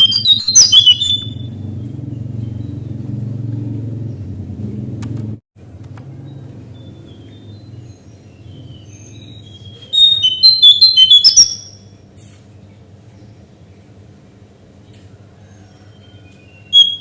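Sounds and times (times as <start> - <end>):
bird chirping: 0.0 - 4.4, 6.1 - 12.0, 15.4 - 17.0
low hum: 0.0 - 8.7.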